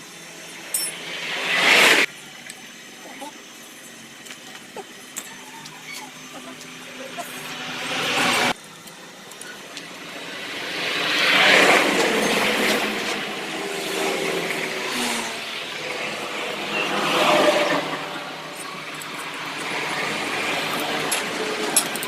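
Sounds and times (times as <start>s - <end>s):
motor vehicles passing: 4.4s - 8.6s, 9.5s - 22.0s.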